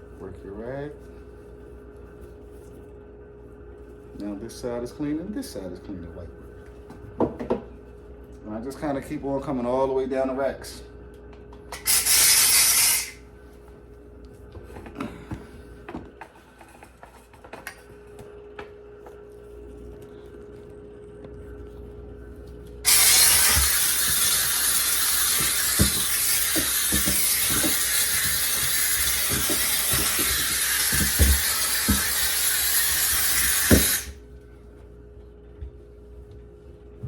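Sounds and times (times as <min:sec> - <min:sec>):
steam cleaner hissing: 0:11.8 - 0:13.2, 0:22.9 - 0:34.2.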